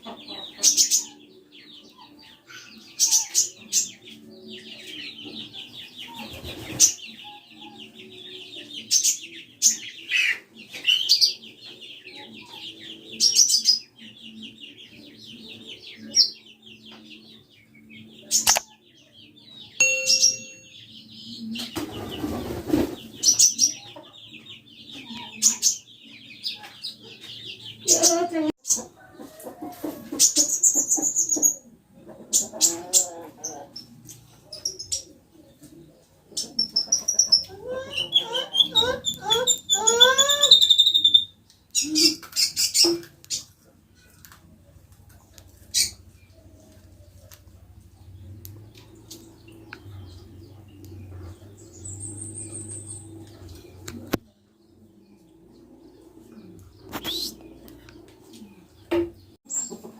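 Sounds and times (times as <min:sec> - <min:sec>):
small songbirds chirping: 0:00.0 - 0:29.6, 0:30.2 - 0:59.9
sharp bird calls: 0:36.4 - 0:43.5, 0:56.8 - 0:57.9
harsh scratchy bird notes: 0:56.9 - 0:57.4.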